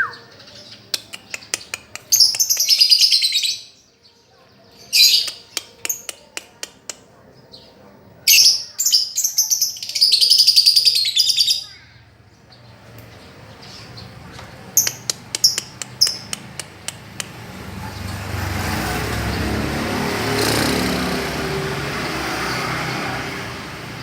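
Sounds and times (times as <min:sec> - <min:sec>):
vehicle engine and road noise: 0:11.9 - 0:24.0.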